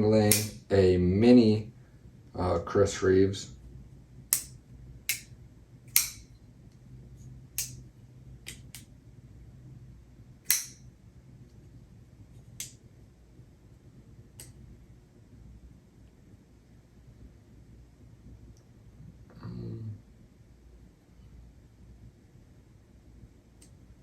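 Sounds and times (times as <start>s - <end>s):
folding knife clicking: 0.3s - 0.6s, 4.3s - 5.3s, 5.9s - 6.3s, 7.6s - 7.8s, 10.4s - 10.9s.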